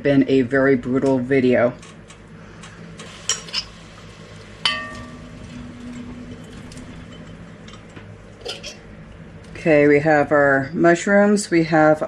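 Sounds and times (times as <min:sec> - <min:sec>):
glass jar clinking: 0:04.6 - 0:08.8.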